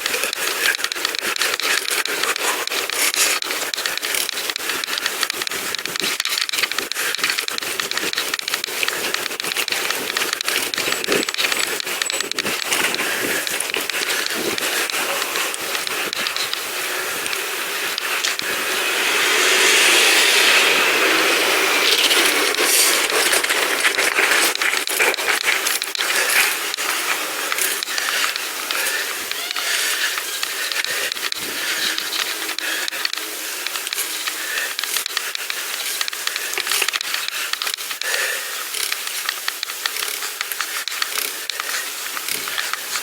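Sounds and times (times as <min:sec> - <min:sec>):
bicycle rattling clicks: 0:00.0 - 0:18.8, 0:21.1 - 0:43.0
hissing rush: 0:00.4 - 0:37.6
bicycle tyres crunching on grit: 0:02.8 - 0:29.1.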